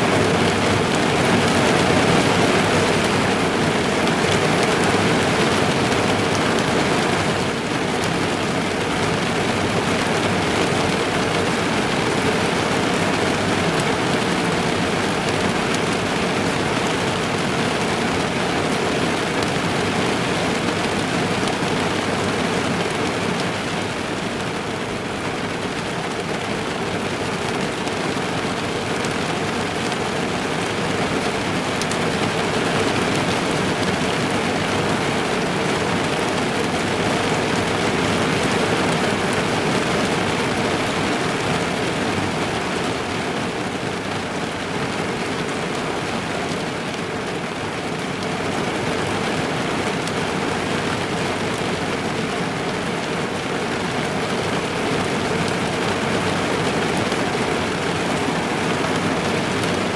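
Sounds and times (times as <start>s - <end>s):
rain on car roof and windows: 0.0s - 59.9s.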